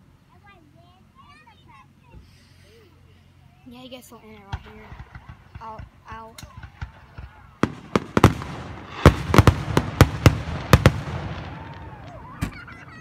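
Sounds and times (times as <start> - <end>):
fireworks crackling: 3.9 - 13.0
fireworks bursting: 4.2 - 13.0.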